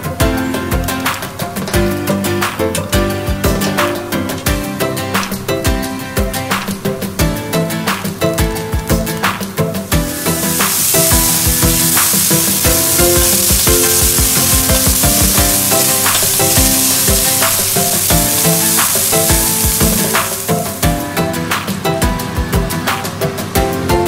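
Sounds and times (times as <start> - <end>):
background music with steady beat: 0.0 - 24.0
meat sizzling in a frying pan: 9.9 - 20.9.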